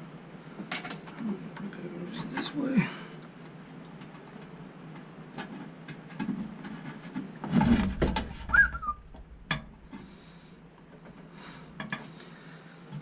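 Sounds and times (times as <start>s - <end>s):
heavy thump: 7.6s - 10.1s.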